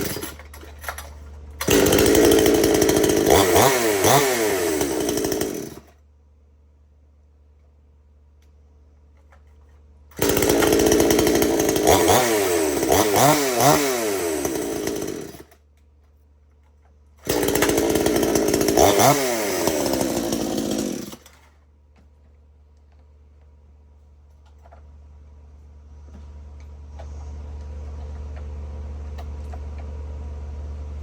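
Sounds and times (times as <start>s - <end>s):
chainsaw revving: 0.0s - 5.9s, 10.2s - 15.6s, 17.2s - 21.5s.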